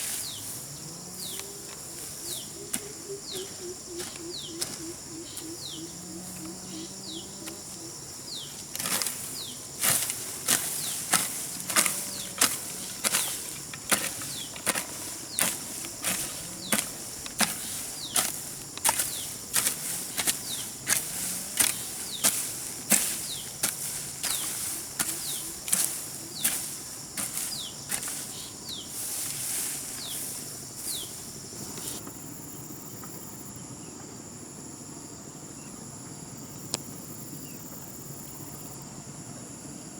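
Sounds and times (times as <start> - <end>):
insects droning: 0.0 - 39.9
hoe chopping into soil: 1.3 - 6.5, 7.4 - 32.0.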